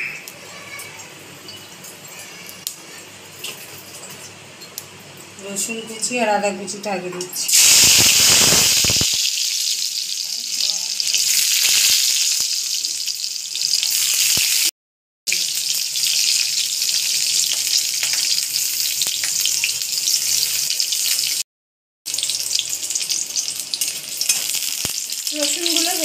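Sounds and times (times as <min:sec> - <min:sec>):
garlic sizzling in hot oil: 0:07.5 - 0:14.7, 0:15.3 - 0:21.4, 0:22.1 - 0:26.0.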